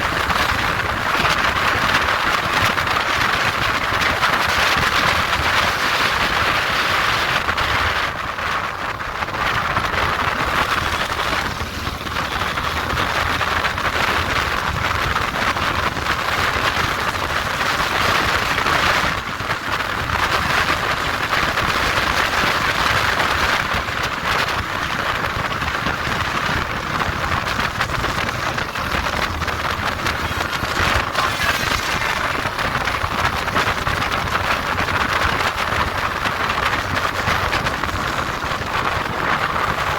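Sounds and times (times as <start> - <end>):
road and engine noise: 0.0 - 39.9
wind rushing over microphone: 0.0 - 39.9.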